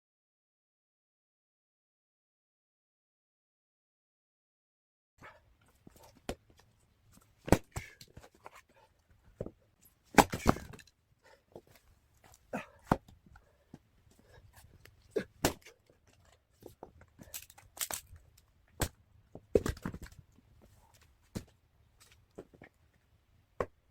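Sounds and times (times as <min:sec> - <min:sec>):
axe chopping wood: 0:07.5 - 0:08.3, 0:10.1 - 0:10.9, 0:15.2 - 0:15.7, 0:18.8 - 0:20.2.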